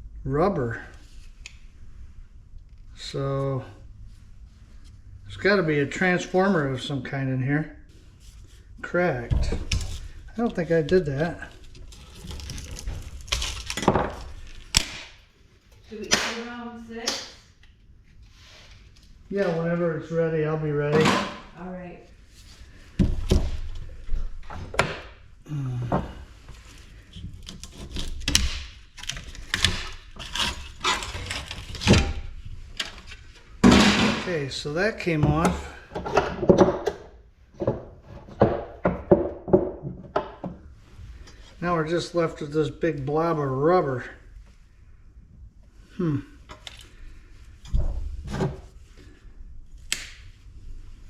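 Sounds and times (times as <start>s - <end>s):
clicks knocks and scrapes: 27.1s - 33.2s
knocks and clunks of light fixture: 35.2s - 40.6s.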